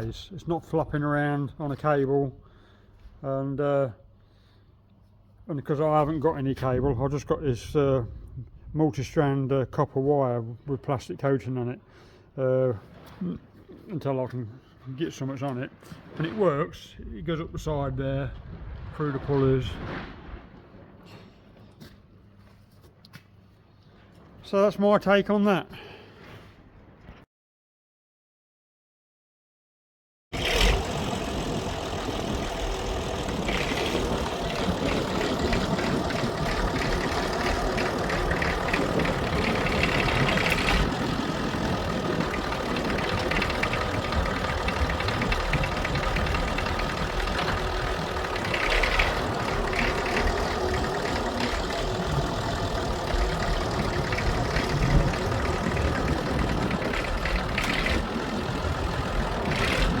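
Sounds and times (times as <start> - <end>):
tractor diesel engine running: 30.4 - 60.0.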